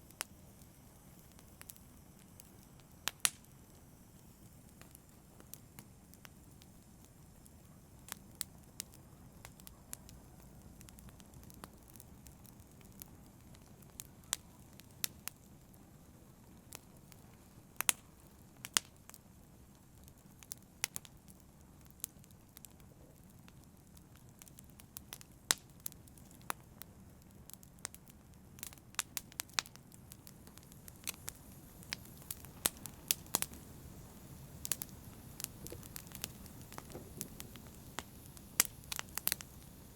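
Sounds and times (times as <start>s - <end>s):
campfire crackling and popping: 0.0s - 39.9s
low steady rush of fire: 0.0s - 39.9s.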